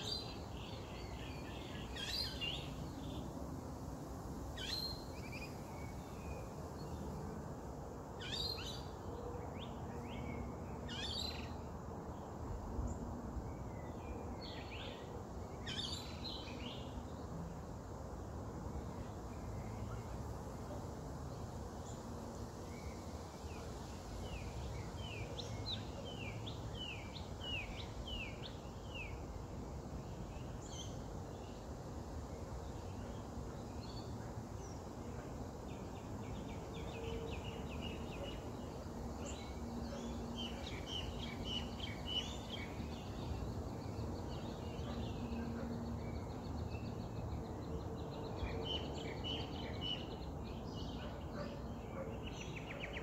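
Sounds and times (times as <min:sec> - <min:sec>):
small birds chirping: 0:00.0 - 0:03.4, 0:18.9 - 0:53.0.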